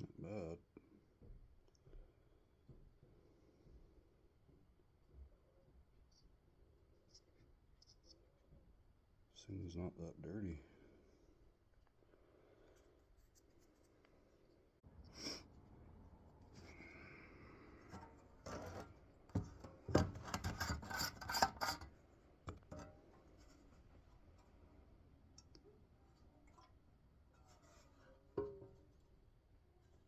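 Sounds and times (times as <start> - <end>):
hand scrubbing engine part: 20.2 - 21.9.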